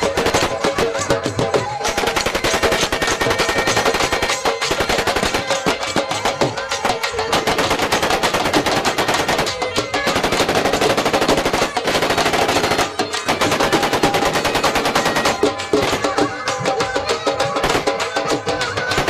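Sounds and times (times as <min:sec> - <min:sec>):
rapid automatic gunfire: 0:07.3 - 0:15.5.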